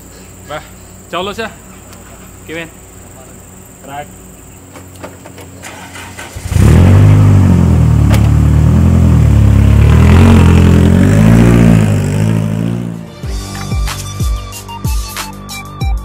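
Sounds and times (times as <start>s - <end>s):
car engine revving: 5.6s - 13.1s.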